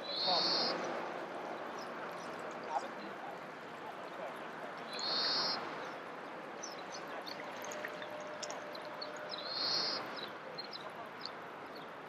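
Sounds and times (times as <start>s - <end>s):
faint bird chirps: 4.9s - 5.6s.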